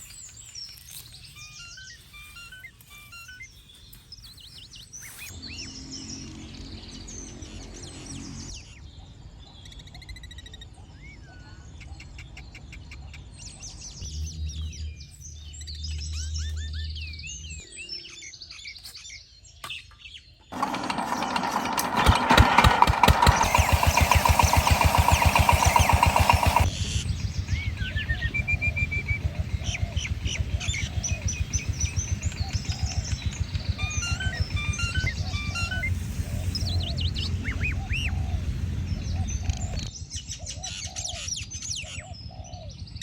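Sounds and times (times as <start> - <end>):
birds chirping: 13.6 - 40.0
small engine pulsing: 20.5 - 40.4.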